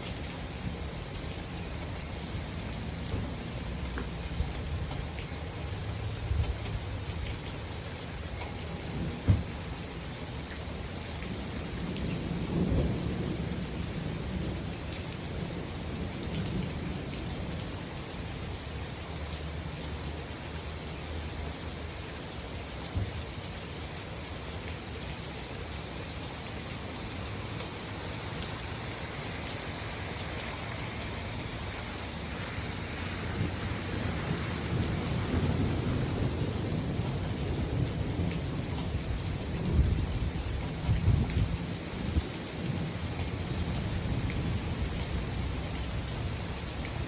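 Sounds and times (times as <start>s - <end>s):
steady rain: 0.0s - 47.0s
thunder rumbling: 30.4s - 46.1s.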